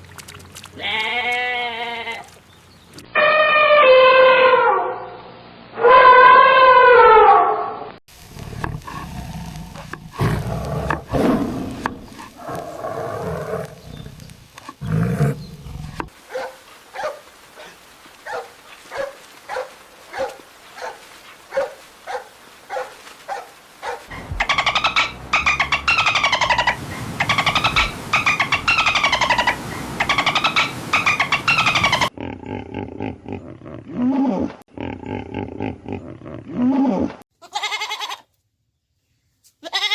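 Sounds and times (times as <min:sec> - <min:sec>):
big cat roaring growl: 0:08.4 - 0:14.1, 0:14.8 - 0:16.1
loud falling animal calls: 0:23.8 - 0:32.1.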